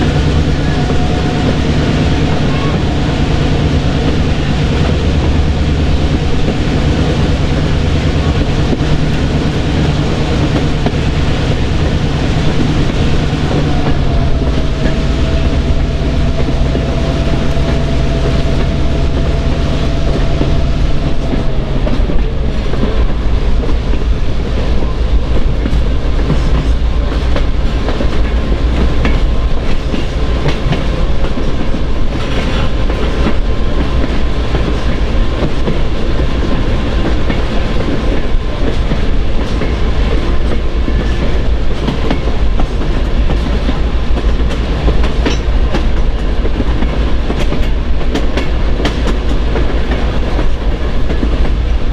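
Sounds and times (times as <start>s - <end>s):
train rumbling on rails: 0.0s - 51.9s
wheels clacking over rail joints: 0.0s - 51.9s
steady pitched hum: 10.9s - 23.6s.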